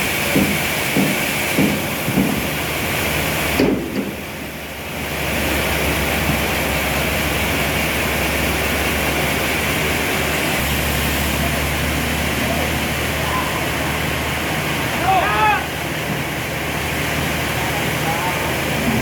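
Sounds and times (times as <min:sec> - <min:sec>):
sawmill machinery humming: 0:00.0 - 0:19.0
knock: 0:00.3 - 0:02.5.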